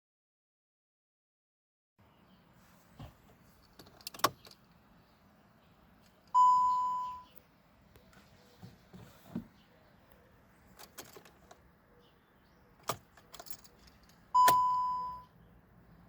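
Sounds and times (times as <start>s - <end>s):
car warning chime: 6.3s - 7.4s, 14.3s - 15.4s.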